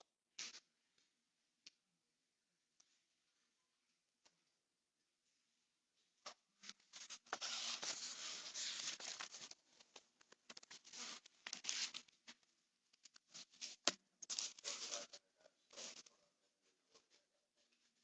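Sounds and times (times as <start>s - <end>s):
rustling and scraping: 6.3s - 16.2s.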